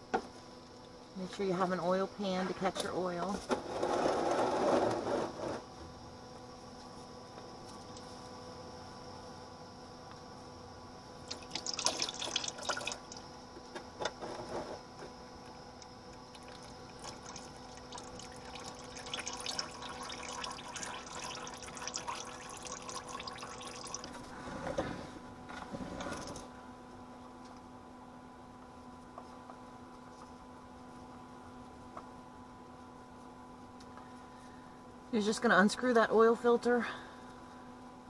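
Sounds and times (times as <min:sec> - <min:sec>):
oil draining into a pan: 0:11.3 - 0:13.3, 0:16.3 - 0:24.2.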